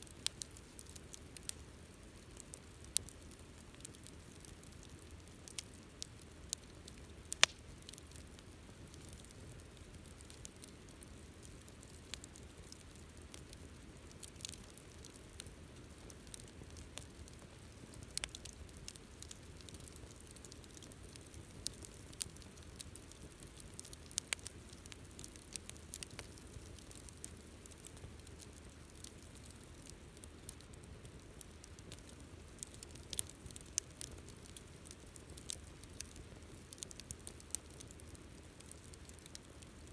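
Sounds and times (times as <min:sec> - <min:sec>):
campfire burning: 0:00.0 - 0:39.9
faint steady hiss: 0:00.0 - 0:39.9
fire crackles and pops: 0:00.0 - 0:39.9.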